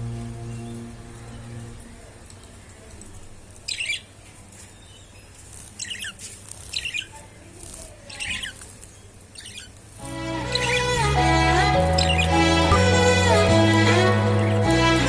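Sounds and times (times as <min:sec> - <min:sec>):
budgerigars squawking: 0:09.4 - 0:09.7, 0:10.4 - 0:11.1, 0:11.8 - 0:12.5.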